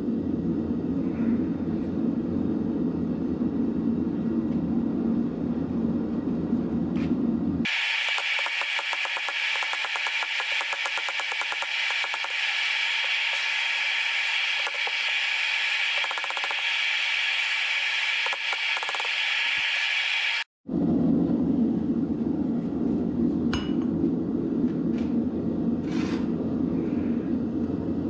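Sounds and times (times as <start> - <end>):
grinding hiss: 7.7 - 20.5
rapid ticking: 7.7 - 20.5.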